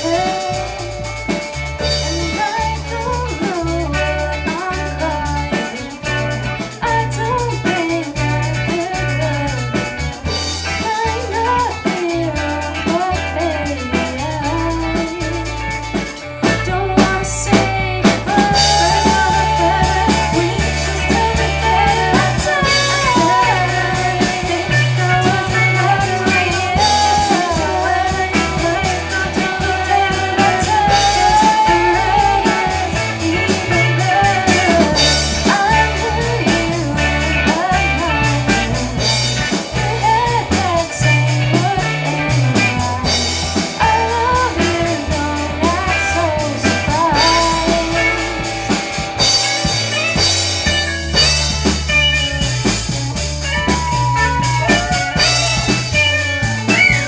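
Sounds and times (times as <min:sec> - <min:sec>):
pop-rock band playing: 0:00.0 - 0:57.0
sliding lead melody: 0:12.7 - 0:57.0.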